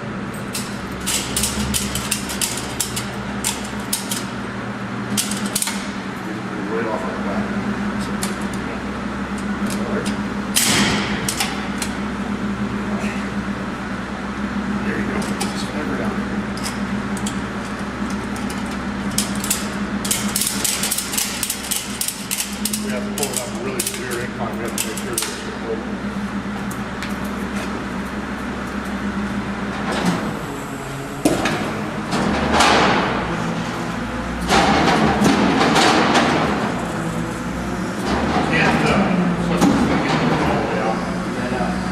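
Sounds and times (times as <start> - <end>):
vehicle engine idling: 0.0 - 41.9.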